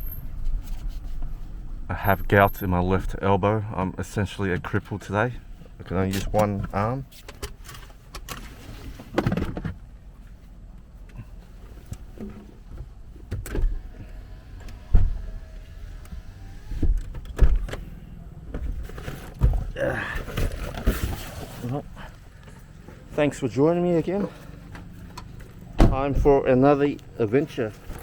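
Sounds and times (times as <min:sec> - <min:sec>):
knocks and thumps in car: 0:09.1 - 0:09.8, 0:16.7 - 0:21.1, 0:24.8 - 0:26.4.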